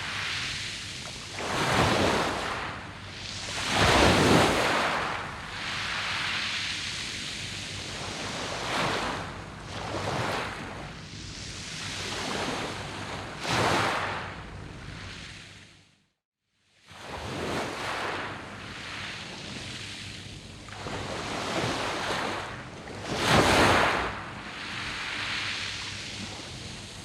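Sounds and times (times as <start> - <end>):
waves breaking on pebbles: 1.2 - 2.8, 3.4 - 6.8, 20.8 - 26.5.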